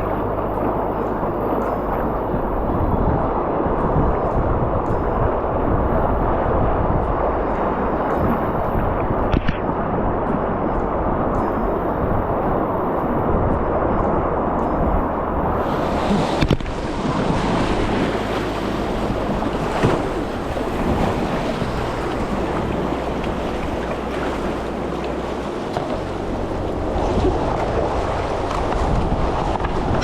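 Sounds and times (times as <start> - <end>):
wind buffeting microphone: 0.0 - 30.0
river water rushing: 14.3 - 30.0.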